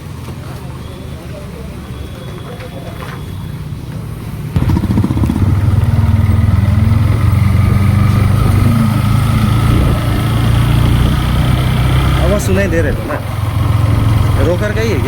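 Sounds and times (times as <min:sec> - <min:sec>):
motorcycle engine revving: 0:04.5 - 0:15.0.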